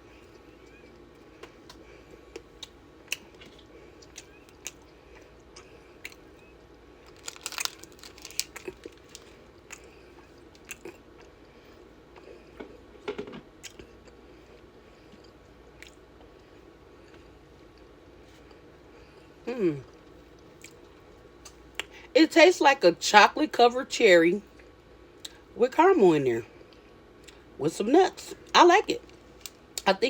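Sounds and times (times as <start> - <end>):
crunchy candy chewing: 7.0 - 11.6.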